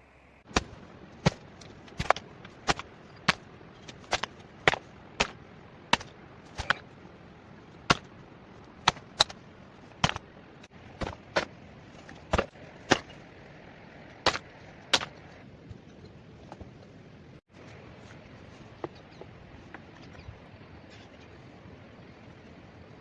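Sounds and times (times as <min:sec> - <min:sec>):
hand tool chopping wood: 0:00.5 - 0:06.8, 0:07.8 - 0:08.1, 0:08.8 - 0:10.3, 0:10.9 - 0:13.2, 0:14.2 - 0:15.2.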